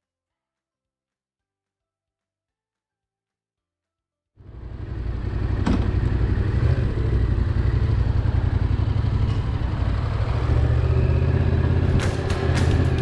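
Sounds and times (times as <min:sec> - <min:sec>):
motorcycle engine rumbling: 0:04.4 - 0:13.0.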